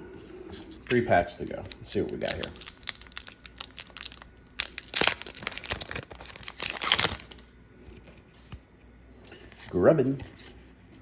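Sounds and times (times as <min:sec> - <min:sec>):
foil wrapper crinkling and tearing: 0:00.9 - 0:07.5.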